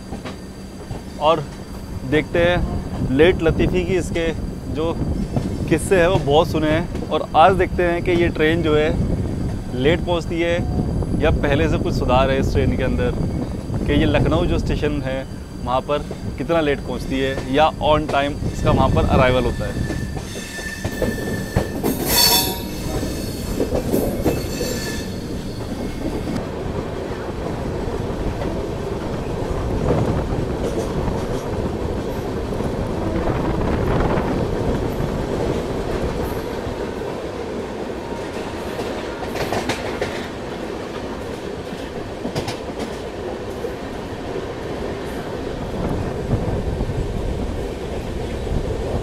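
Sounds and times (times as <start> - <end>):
train wheels rumbling on track: 0.0 - 49.0
high wheel squeal: 18.2 - 26.3.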